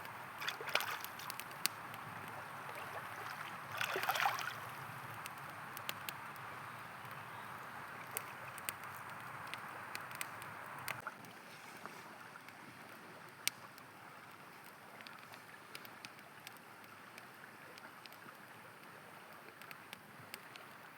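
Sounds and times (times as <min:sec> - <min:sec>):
river water rushing: 0:00.0 - 0:05.2
campfire crackling and popping: 0:00.0 - 0:11.4, 0:12.2 - 0:20.9.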